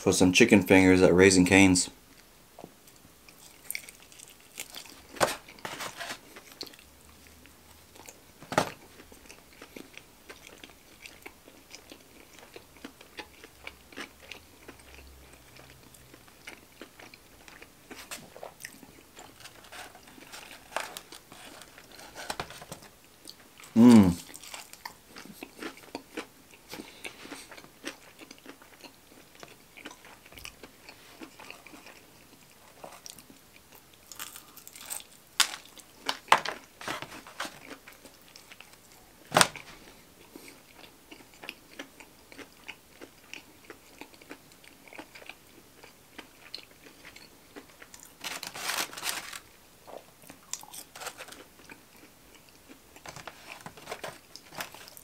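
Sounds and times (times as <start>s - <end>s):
crunchy chewing with mouth smacks: 2.9s - 22.1s, 23.2s - 55.0s
rustling: 5.0s - 6.6s, 19.2s - 22.9s, 36.5s - 37.7s, 48.2s - 49.5s, 53.1s - 55.0s.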